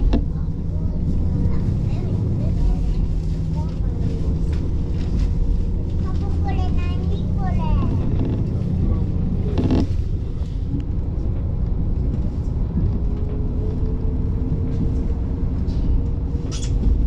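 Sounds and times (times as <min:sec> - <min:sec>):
railcar engine and wheels rumbling: 0:00.0 - 0:17.0.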